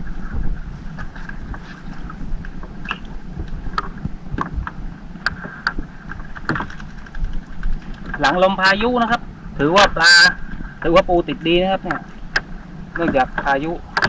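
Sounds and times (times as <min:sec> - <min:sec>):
boat engine running: 0:00.0 - 0:14.0
clicks and knocks of net hauling: 0:01.1 - 0:09.2.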